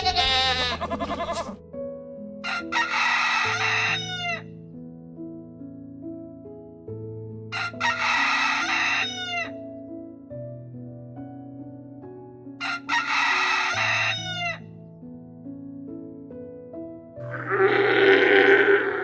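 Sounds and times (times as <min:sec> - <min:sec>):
soft background music: 0:00.0 - 0:19.0
rooster crowing: 0:02.5 - 0:04.4, 0:07.6 - 0:09.5, 0:12.8 - 0:14.5, 0:17.2 - 0:19.0.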